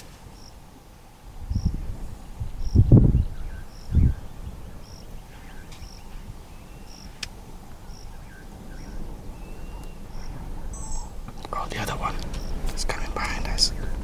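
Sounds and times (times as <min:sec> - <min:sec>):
steady low rumble: 0:05.9 - 0:14.0
short high chirp: 0:10.8 - 0:11.2.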